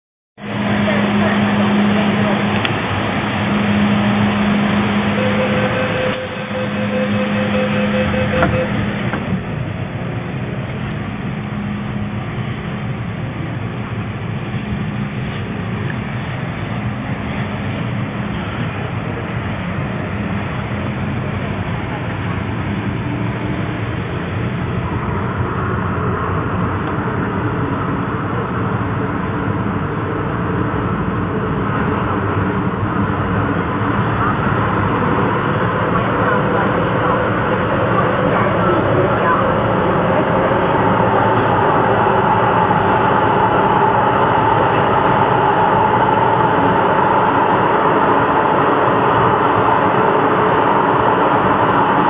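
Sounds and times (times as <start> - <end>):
faint rapidly pulsing tone: 0.4 - 10.3, 22.8 - 52.0
station noise: 0.4 - 52.0
train equipment humming: 0.4 - 52.0.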